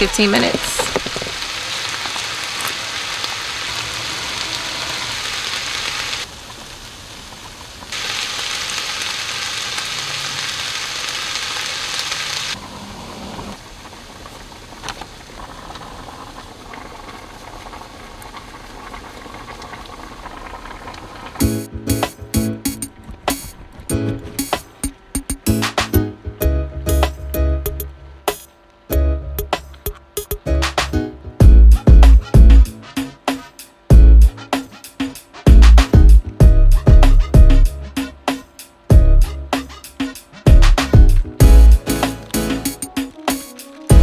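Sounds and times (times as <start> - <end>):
meat sizzling in a skillet: 0.1 - 12.6.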